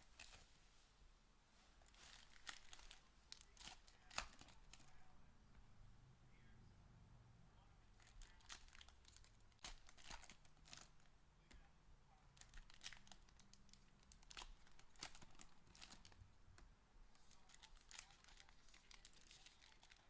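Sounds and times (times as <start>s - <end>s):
wrappers crinkling and tearing: 1.8s - 5.0s, 8.0s - 11.1s, 12.4s - 16.2s, 17.2s - 20.0s.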